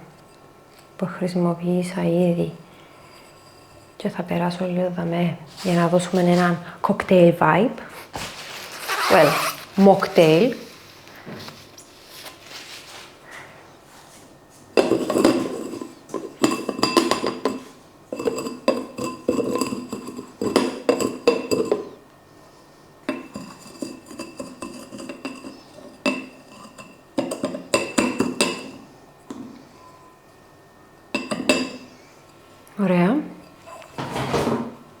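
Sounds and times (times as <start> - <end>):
glass clinking against a dish: 16.4 - 17.6, 23.1 - 28.8, 31.1 - 31.9.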